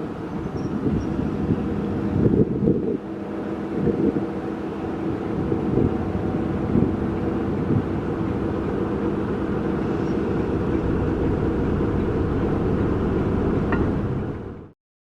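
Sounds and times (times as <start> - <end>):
faint engine hum: 0.0 - 14.8
train rumbling: 0.0 - 14.8.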